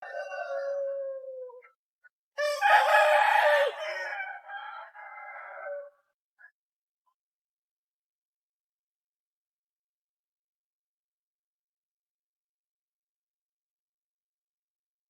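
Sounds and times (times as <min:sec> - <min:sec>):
rooster crowing: 0:00.0 - 0:01.6, 0:02.4 - 0:06.0.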